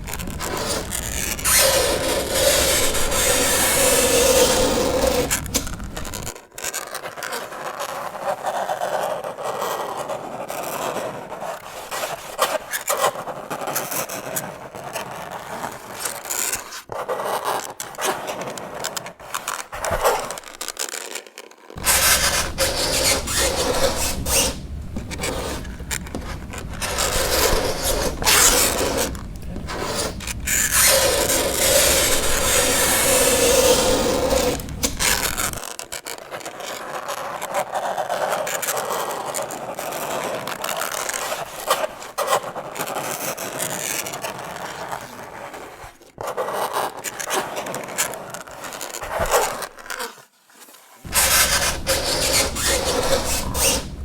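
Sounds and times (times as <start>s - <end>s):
fingernails scraping a chalkboard: 0.0s - 6.3s, 21.8s - 35.6s, 51.0s - 54.0s.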